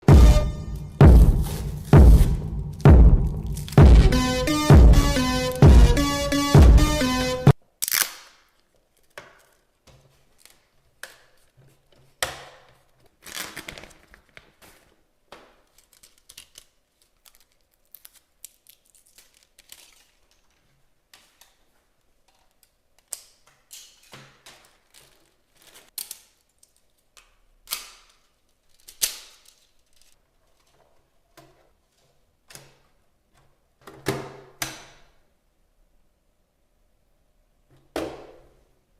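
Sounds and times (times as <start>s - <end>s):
packaging rustling: 12.9s - 15.0s, 15.6s - 21.8s, 23.9s - 27.1s.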